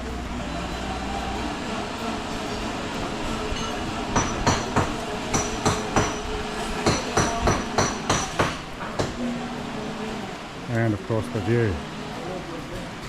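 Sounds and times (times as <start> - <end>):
steady background hiss: 0.0 - 13.0
sharp hammering knocks: 4.2 - 9.2.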